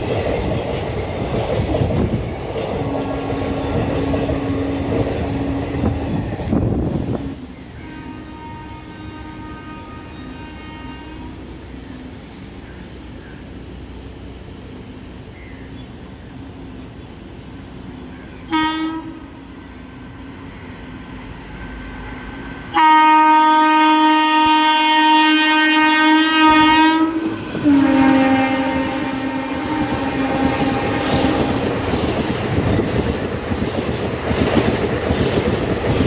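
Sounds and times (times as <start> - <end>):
train rumble: 0.0 - 36.0
locomotive horn blasts: 2.8 - 6.2, 7.1 - 11.6, 18.4 - 19.8, 22.7 - 32.1.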